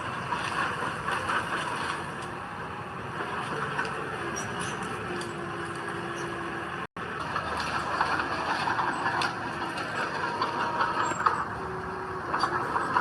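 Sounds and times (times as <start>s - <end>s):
crackling and clatter: 0.0s - 2.4s, 3.1s - 6.2s, 6.8s - 13.0s
heavy machinery engine running: 0.0s - 13.0s.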